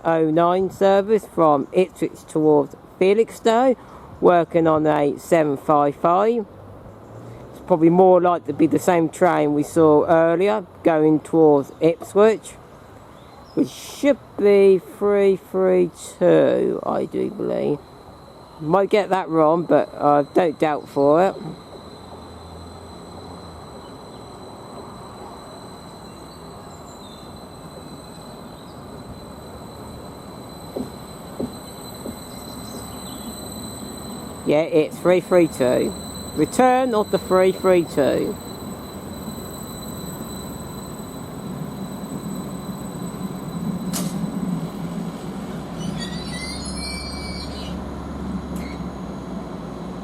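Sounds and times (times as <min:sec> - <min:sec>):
faint high whine: 0:00.0 - 0:50.0
train rumbling: 0:13.6 - 0:50.0
high-pitched brake squeal: 0:17.4 - 0:47.9, 0:48.6 - 0:49.0.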